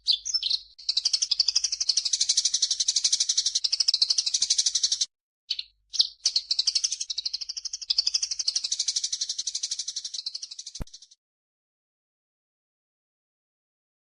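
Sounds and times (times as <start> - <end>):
songbird rattling trill: 0.0 - 11.1
sharp click: 10.8 - 11.0.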